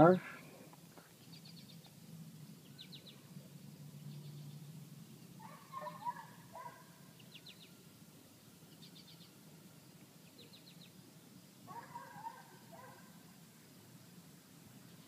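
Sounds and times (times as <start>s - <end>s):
faint birdsong chirps and trills: 0.0s - 15.0s
low steady hum: 0.0s - 15.0s.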